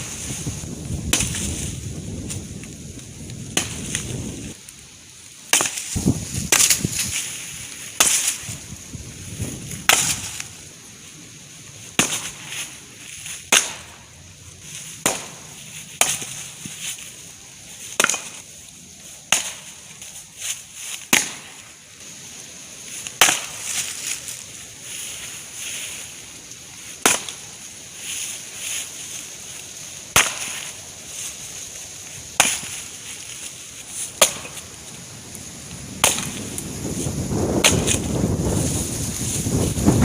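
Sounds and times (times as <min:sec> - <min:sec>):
axe splitting wood: 0:01.0 - 0:01.5, 0:03.6 - 0:04.0, 0:05.5 - 0:06.9, 0:08.0 - 0:08.4, 0:09.8 - 0:10.4, 0:12.0 - 0:12.4, 0:13.5 - 0:13.9, 0:15.0 - 0:15.4, 0:16.0 - 0:16.4, 0:18.0 - 0:18.4, 0:19.3 - 0:19.7, 0:21.1 - 0:21.5, 0:23.2 - 0:23.7, 0:27.0 - 0:27.4, 0:30.1 - 0:30.7, 0:32.4 - 0:32.8, 0:34.1 - 0:34.6, 0:36.0 - 0:36.4, 0:37.6 - 0:38.1.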